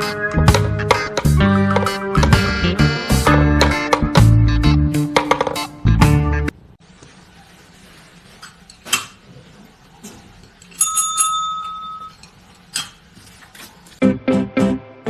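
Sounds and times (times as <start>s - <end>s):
small metal bell ringing: 10.7s - 12.2s.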